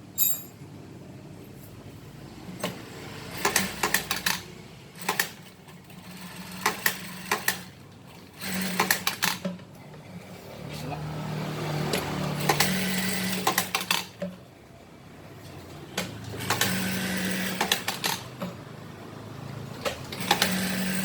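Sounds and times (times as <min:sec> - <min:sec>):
sewing machine stitching: 0:02.6 - 0:09.5, 0:11.7 - 0:14.1, 0:16.3 - 0:18.4, 0:19.9 - 0:21.0
sewing machine clicks: 0:02.7 - 0:04.4, 0:08.4 - 0:09.5, 0:19.8 - 0:21.0.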